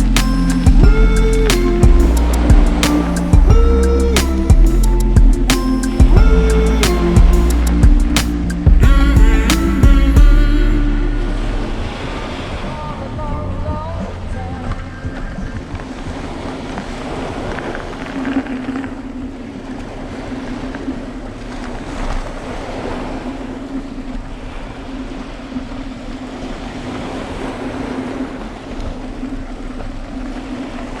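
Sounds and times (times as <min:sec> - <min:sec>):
low motor hum: 0:00.0 - 0:15.9
surf-like noise: 0:10.4 - 0:31.0.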